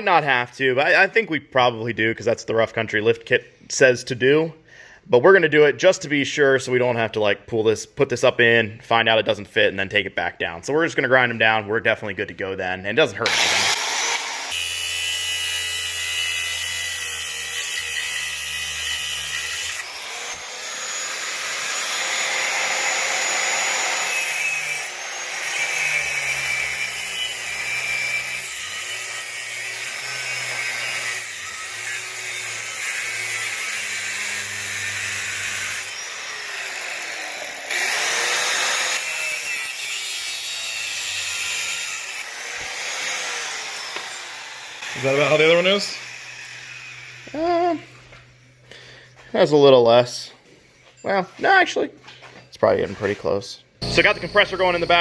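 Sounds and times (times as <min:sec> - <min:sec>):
handheld grinder grinding metal: 0:13.2 - 0:48.2, 0:53.8 - 0:55.0.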